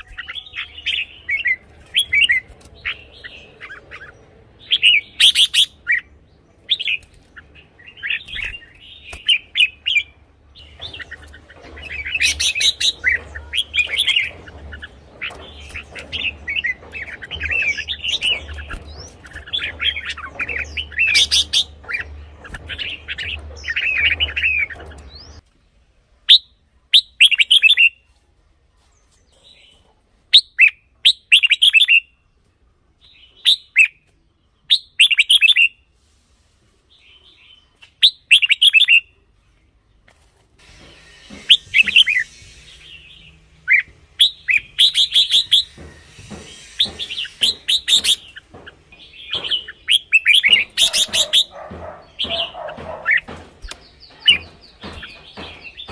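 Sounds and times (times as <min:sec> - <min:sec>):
bird warbling: 0:41.3 - 0:55.9.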